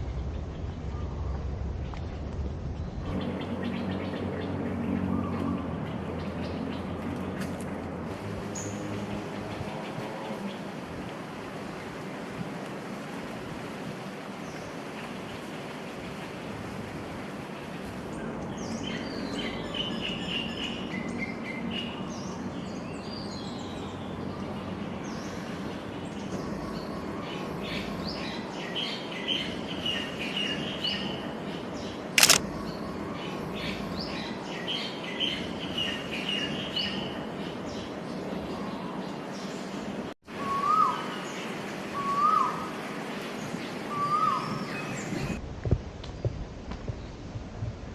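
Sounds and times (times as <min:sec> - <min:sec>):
sharp click: 0:32.2 - 0:32.4.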